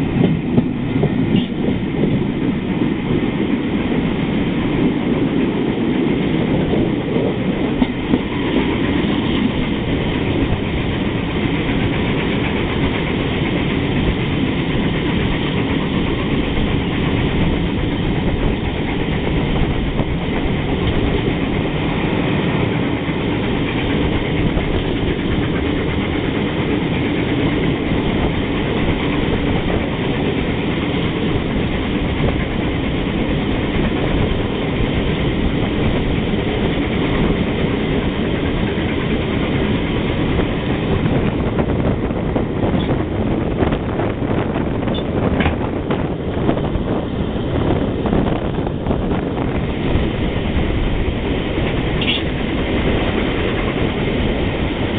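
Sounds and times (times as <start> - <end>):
train wheels rumbling on rail: 0.0 - 54.9.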